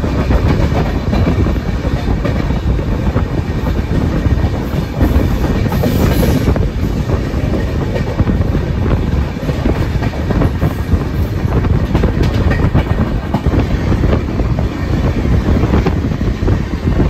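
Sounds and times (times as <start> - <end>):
train rumbling at speed: 0.0 - 17.0
wheels clicking over rail joints: 7.2 - 13.8.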